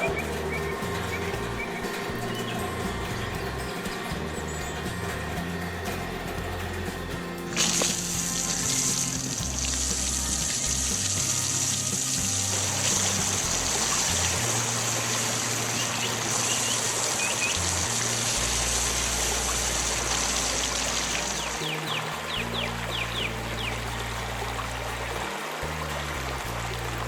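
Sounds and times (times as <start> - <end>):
background music with bass line: 0.0 - 27.0
high water-like rushing effect: 7.5 - 27.0.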